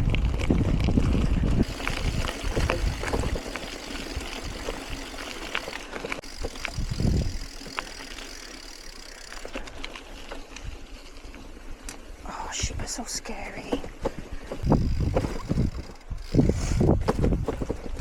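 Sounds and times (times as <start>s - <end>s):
wind on microphone: 0.0s - 5.1s, 6.4s - 7.6s, 13.8s - 18.0s
bicycle tyre noise: 0.0s - 12.2s, 14.0s - 18.0s
bike ticks and rattles: 0.0s - 18.0s.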